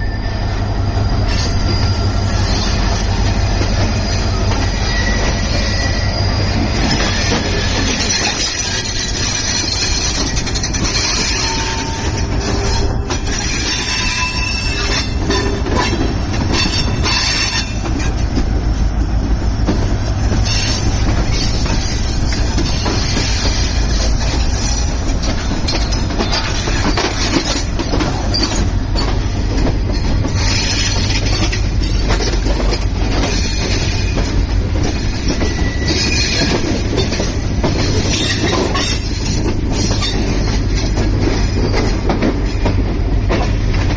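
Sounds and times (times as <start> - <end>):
high wheel squeals: 0.0 - 18.1, 33.2 - 37.2
train rumble: 0.0 - 43.9
wheels clattering over rails: 1.4 - 43.9.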